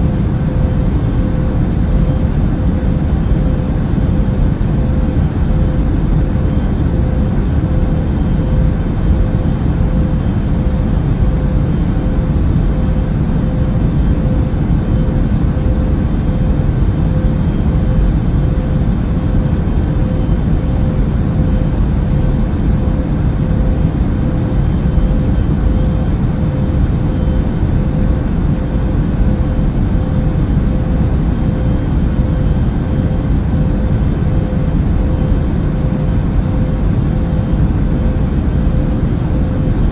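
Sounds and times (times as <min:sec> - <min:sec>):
constant hum tone: 0:00.0 - 0:39.9
engine and airflow rush: 0:00.0 - 0:39.9.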